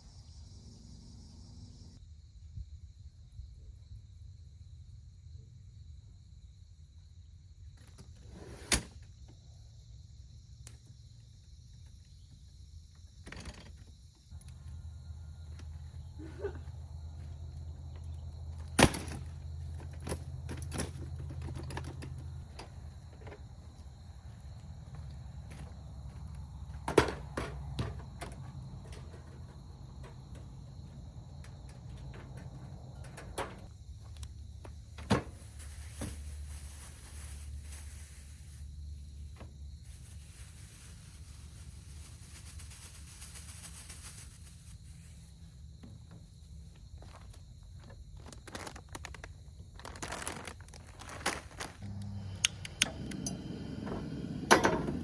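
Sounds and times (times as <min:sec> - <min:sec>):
insects chirring: 0:00.0 - 0:55.0
low hum: 0:51.8 - 0:55.0
low steady rumble: 0:51.8 - 0:55.0.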